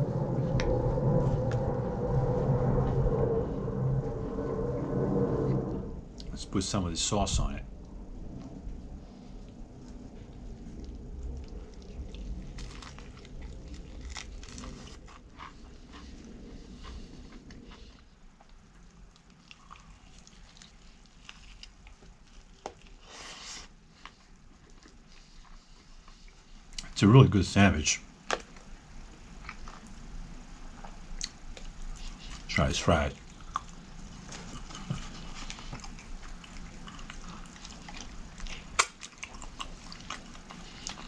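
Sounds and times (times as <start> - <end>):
chewing with soft clicks: 9.2 - 27.0, 30.7 - 41.0
crunching bite: 10.8 - 16.1, 33.1 - 41.0.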